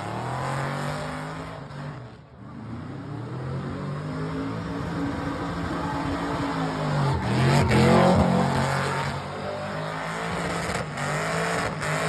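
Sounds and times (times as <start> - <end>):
car engine revving high: 3.8 - 12.0.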